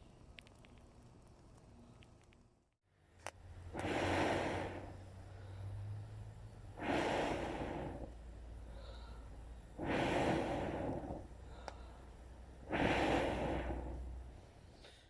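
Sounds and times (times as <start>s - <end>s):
person blowing on fire: 3.7s - 5.8s, 6.7s - 12.0s, 12.6s - 14.2s.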